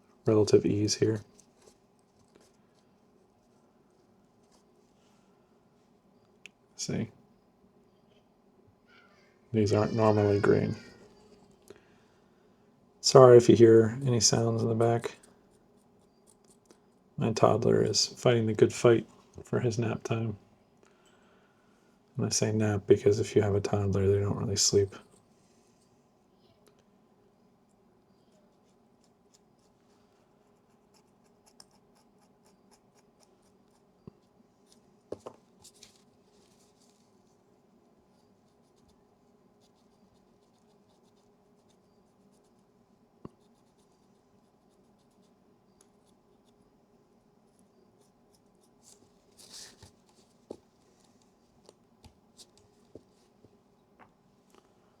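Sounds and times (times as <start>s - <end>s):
faint scratching and ticking: 0.3s - 7.1s, 13.0s - 20.4s, 27.6s - 54.9s.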